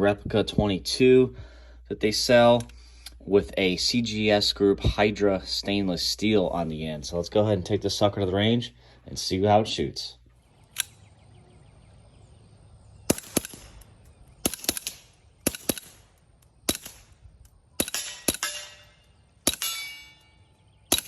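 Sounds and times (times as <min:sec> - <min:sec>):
suppressed pistol shots: 0:13.0 - 0:17.2, 0:17.8 - 0:20.2
metallic ring: 0:19.6 - 0:20.5.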